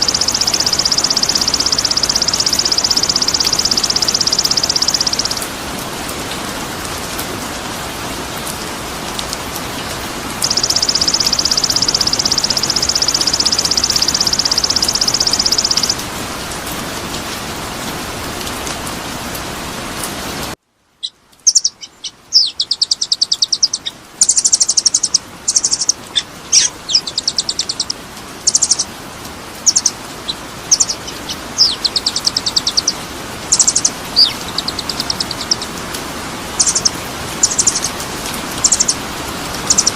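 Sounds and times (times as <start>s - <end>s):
songbird trilling and chirping: 0.0s - 5.4s, 10.4s - 16.0s, 21.0s - 28.9s, 29.6s - 35.7s, 36.6s - 37.9s, 38.6s - 39.0s, 39.6s - 39.9s
steady rain-like hiss: 0.0s - 39.9s.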